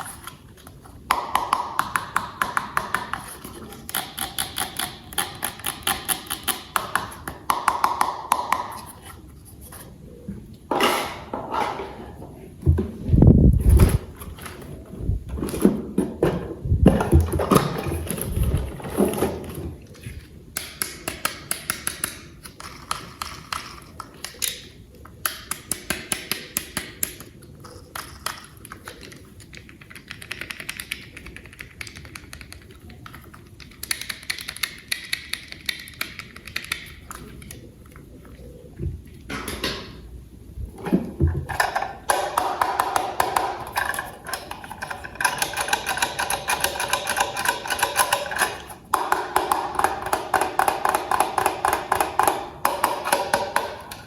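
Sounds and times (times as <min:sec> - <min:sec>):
plastic toy parts clicking: 0:01.4 - 0:09.0, 0:20.6 - 0:37.6, 0:41.5 - 0:54.0.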